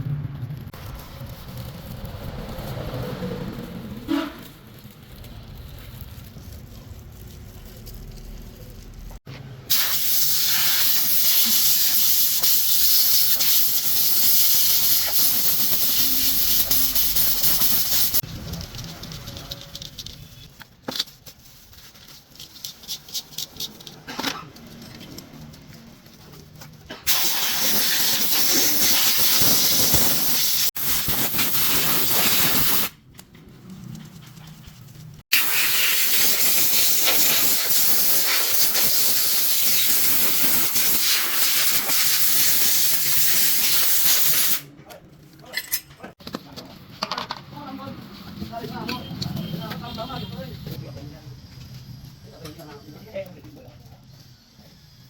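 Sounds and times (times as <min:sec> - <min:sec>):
high-pitched hissing spray: 0:09.7 - 0:18.2, 0:27.1 - 0:33.0, 0:35.3 - 0:44.7.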